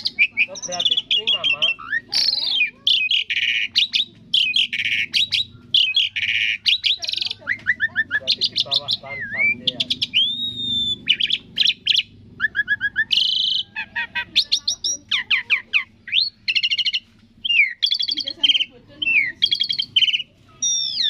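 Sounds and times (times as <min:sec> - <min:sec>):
starling singing: 0:00.0 - 0:21.0.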